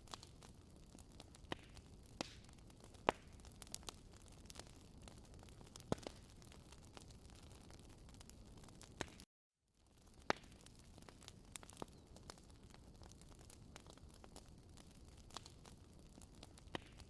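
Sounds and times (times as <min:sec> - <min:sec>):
campfire crackling: 0:00.0 - 0:17.0
sharp pops and snaps: 0:01.3 - 0:03.8, 0:08.8 - 0:09.3, 0:10.2 - 0:10.6, 0:16.6 - 0:17.0.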